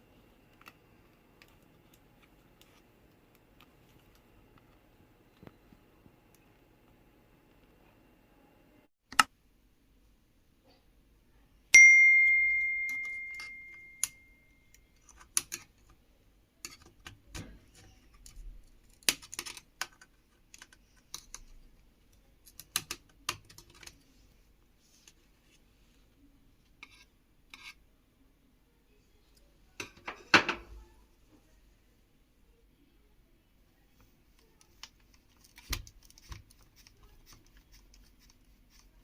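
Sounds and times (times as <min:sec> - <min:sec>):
sharp metallic ding: 0:11.8 - 0:14.5.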